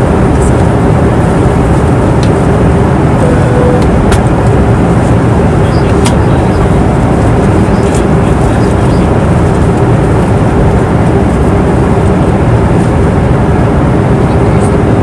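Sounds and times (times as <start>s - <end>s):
airliner cabin engine rush: 0.0s - 15.0s.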